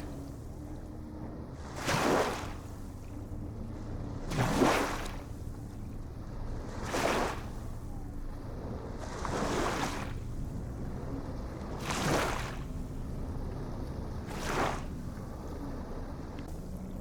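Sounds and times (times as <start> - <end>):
low rumble of surf: 0.0 - 17.0
ocean waves washing in: 8.5 - 17.0.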